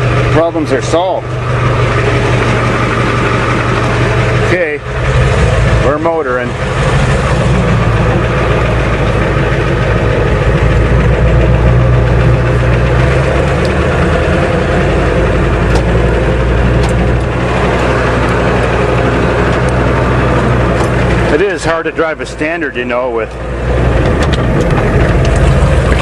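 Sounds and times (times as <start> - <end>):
truck diesel engine running: 0.0 - 26.0.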